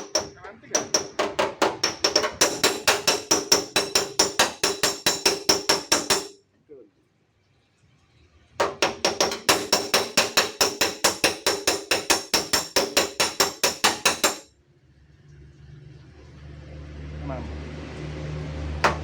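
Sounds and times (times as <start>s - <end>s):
hammer tapping steel panel: 0.0s - 6.4s, 8.6s - 14.5s.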